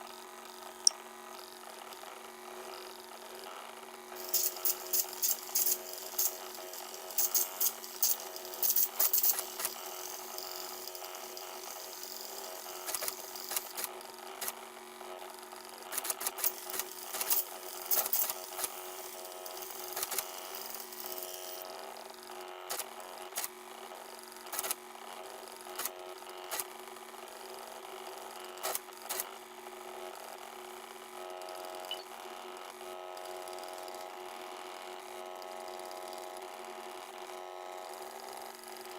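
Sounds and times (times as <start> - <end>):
machine clicking and rattling: 4.2 - 13.9.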